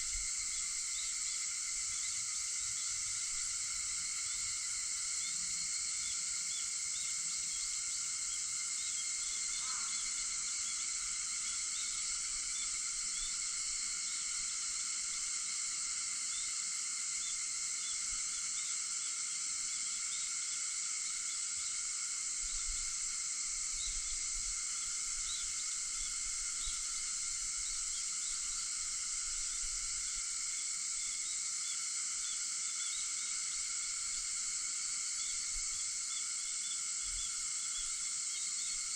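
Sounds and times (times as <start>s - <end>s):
cicada rising call: 0.0s - 38.9s
cicadas droning: 0.0s - 38.9s.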